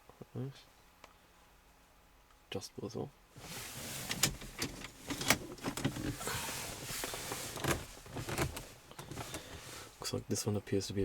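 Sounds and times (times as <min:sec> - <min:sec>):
scraping rustle: 0:03.4 - 0:10.1.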